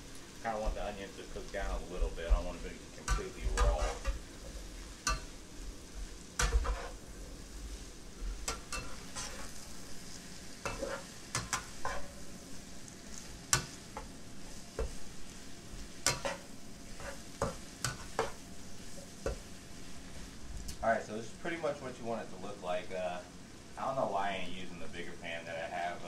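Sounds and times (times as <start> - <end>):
food sizzling in oil: 0.0 - 26.0
spatula scraping and knocking pan: 1.6 - 5.4, 6.4 - 7.0, 8.2 - 12.3, 13.1 - 15.2, 15.8 - 19.6.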